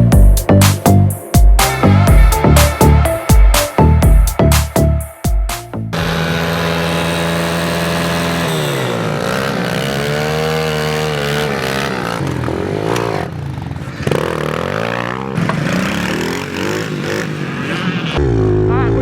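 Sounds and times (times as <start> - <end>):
motorbike engine revving: 5.9 - 19.0.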